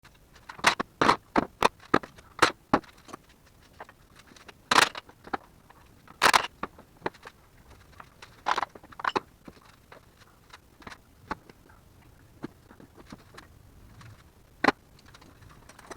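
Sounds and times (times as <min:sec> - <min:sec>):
tools clanking and knocking: 0:04.7 - 0:05.0, 0:06.2 - 0:06.5, 0:08.5 - 0:09.2.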